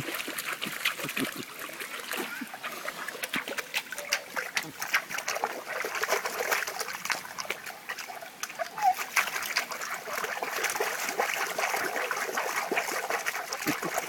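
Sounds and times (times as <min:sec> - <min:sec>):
dog splashing in shallow water: 0:00.0 - 0:14.0.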